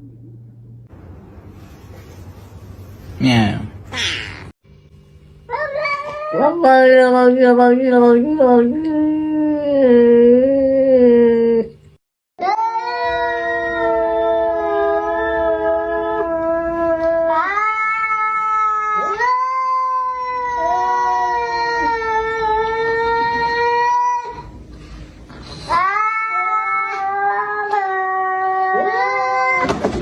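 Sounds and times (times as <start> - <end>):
cat yowling: 5.5 - 6.6, 12.4 - 24.4, 25.7 - 29.8.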